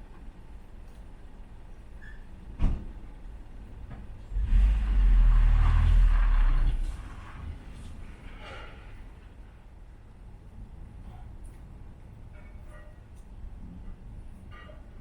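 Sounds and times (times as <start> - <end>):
deep thunder rumble: 4.3 - 8.1.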